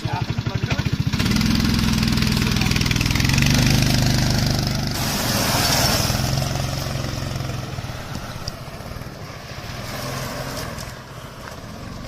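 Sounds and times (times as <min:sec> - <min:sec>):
small engine revving high: 0:01.1 - 0:08.2.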